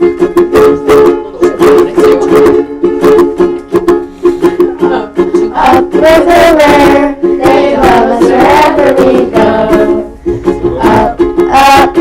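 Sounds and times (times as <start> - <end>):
acoustic strummed chords: 0.0 - 12.0
voices singing: 5.1 - 12.0.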